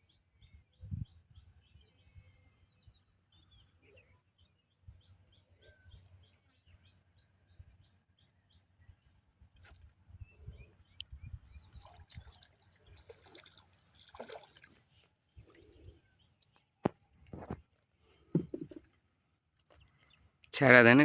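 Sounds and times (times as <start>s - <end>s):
water splashing against boat: 11.8s - 15.0s.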